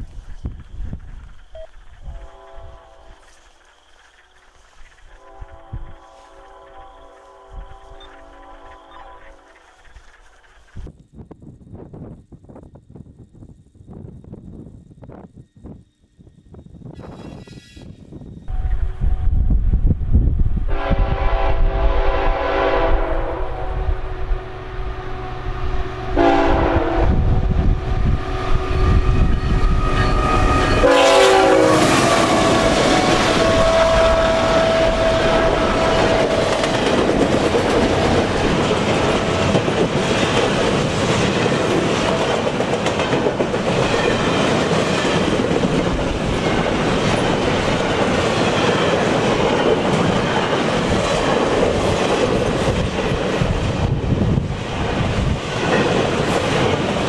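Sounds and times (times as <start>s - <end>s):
locomotive engine rumbling: 0.0s - 10.8s, 23.2s - 57.0s
locomotive air horn blasts: 2.0s - 3.2s, 5.2s - 9.5s, 20.7s - 36.8s.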